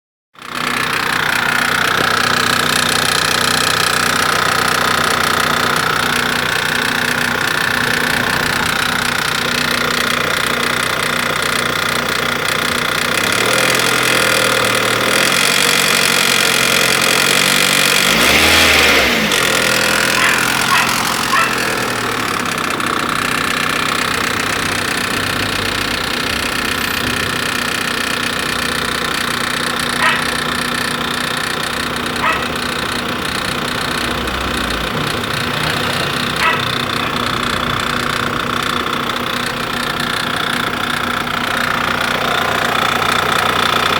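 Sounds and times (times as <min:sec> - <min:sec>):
car engine running: 0:00.4 - 0:43.9.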